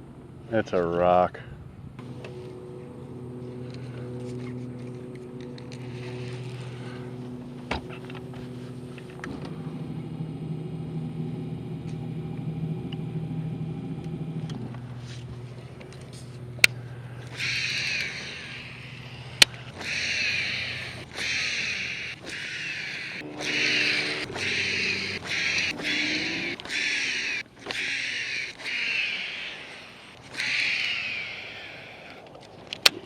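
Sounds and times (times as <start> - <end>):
boat motor drone: 0.0 - 32.2
harsh bird call: 17.2 - 32.2.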